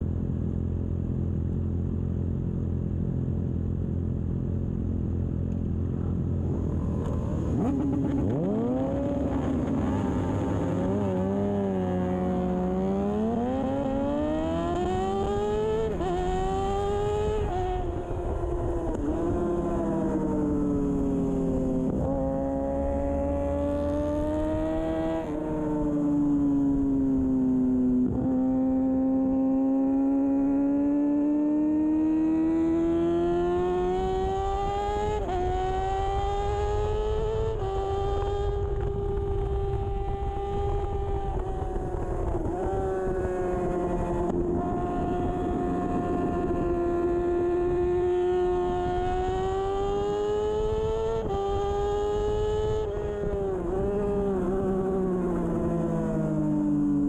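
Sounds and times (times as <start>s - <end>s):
motorcycle engine at high revs: 0.6s - 57.0s
wind rush: 38.3s - 50.1s.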